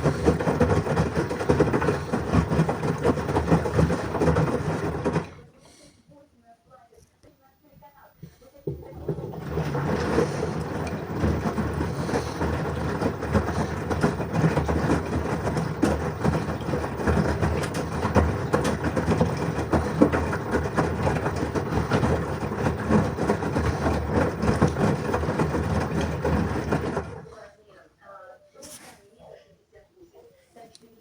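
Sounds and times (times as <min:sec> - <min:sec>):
knocks in washing machine: 0:00.0 - 0:05.4, 0:08.6 - 0:27.2
washing machine drum rumble: 0:00.0 - 0:05.5, 0:08.6 - 0:27.3.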